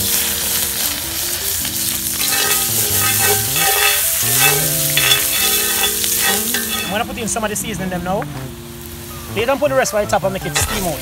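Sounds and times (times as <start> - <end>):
vegetables frying in oil: 0.0 - 11.0
spoon stirring: 2.2 - 7.0.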